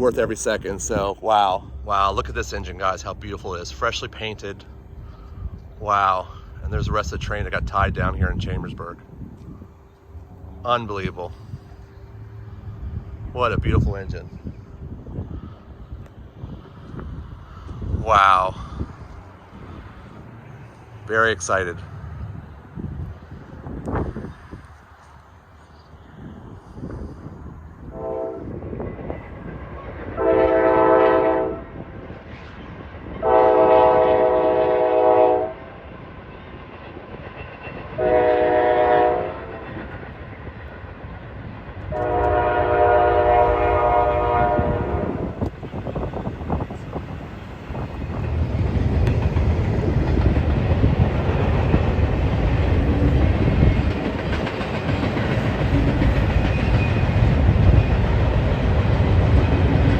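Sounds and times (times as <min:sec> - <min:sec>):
train wheels rumbling on rails: 0:00.0 - 0:59.9
locomotive air horn: 0:27.8 - 0:28.6, 0:30.2 - 0:31.8, 0:33.2 - 0:35.6, 0:38.0 - 0:39.8, 0:41.9 - 0:45.4.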